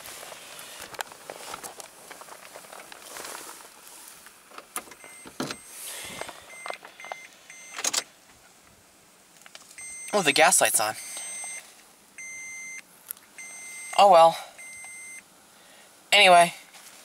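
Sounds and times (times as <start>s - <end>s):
clicks and rustling in car cab: 4.4s - 8.1s
dashboard warning chime beeping: 5.0s - 5.8s, 6.4s - 8.1s, 9.8s - 12.8s, 13.4s - 15.2s.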